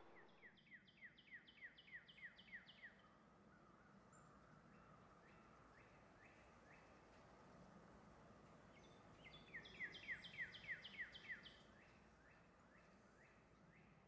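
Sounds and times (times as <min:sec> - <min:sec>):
faint outdoor ambience: 0:00.0 - 0:14.0.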